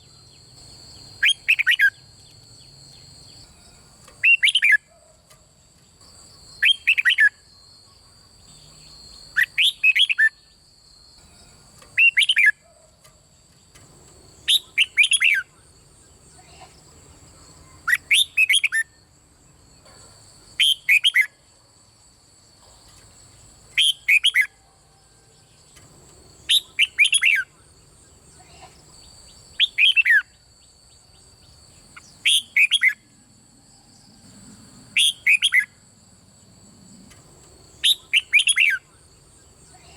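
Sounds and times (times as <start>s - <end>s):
bird singing whistled phrases: 1.2s - 2.1s, 4.2s - 4.9s, 6.6s - 7.5s, 9.3s - 10.5s, 12.0s - 12.6s, 14.5s - 15.5s, 17.8s - 19.0s, 20.6s - 21.4s, 23.8s - 24.6s, 26.5s - 27.5s, 29.5s - 30.4s, 32.0s - 33.0s, 35.0s - 35.7s, 37.8s - 38.9s.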